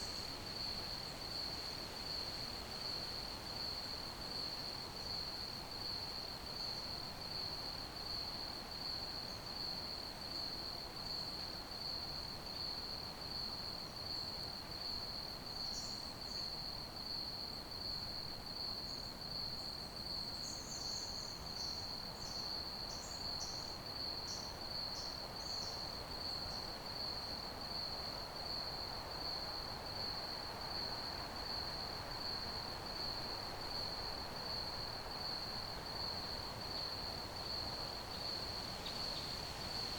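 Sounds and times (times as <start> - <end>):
crickets chirping: 20.4 - 39.9
background hiss: 24.7 - 39.9.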